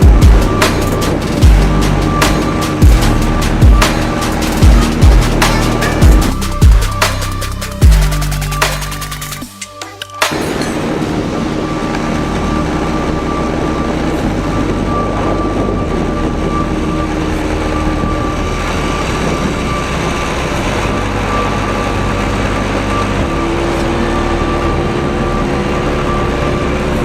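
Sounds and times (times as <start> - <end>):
heavy rushing noise: 0.0 - 9.5, 10.2 - 27.0
motorcycle engine running: 0.0 - 9.5.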